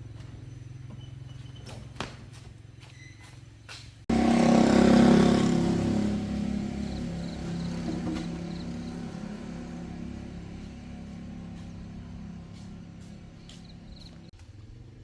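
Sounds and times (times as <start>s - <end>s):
truck engine running: 4.1s - 14.3s.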